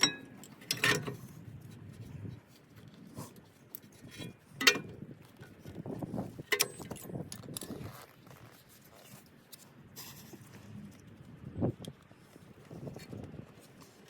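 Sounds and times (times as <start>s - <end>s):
sharp metal clanks: 0.0s - 1.2s, 6.5s - 7.1s
metal tools clinking: 0.0s - 1.3s, 6.5s - 7.8s.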